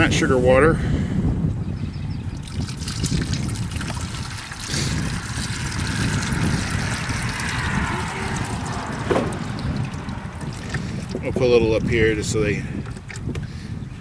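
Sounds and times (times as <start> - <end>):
wind rumble on microphone: 0.0 - 14.0
syrup trickling pour: 2.4 - 11.2.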